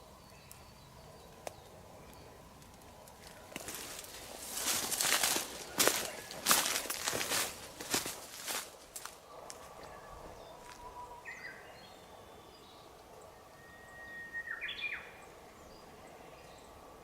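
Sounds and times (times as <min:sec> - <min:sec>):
soft outdoor hush: 0:00.0 - 0:17.0
songbird singing: 0:00.0 - 0:17.0.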